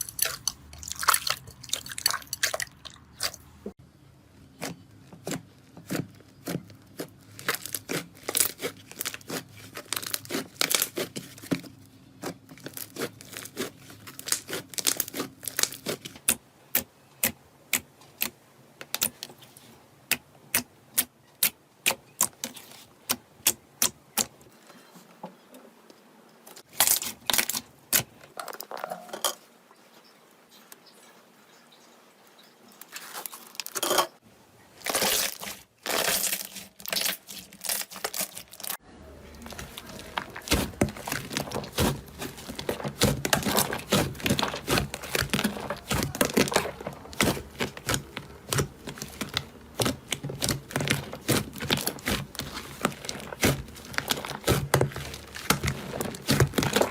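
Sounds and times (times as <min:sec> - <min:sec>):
slime popping and crackling: 0:04.6 - 0:11.6, 0:12.2 - 0:16.8, 0:34.8 - 0:38.8, 0:39.4 - 0:56.9.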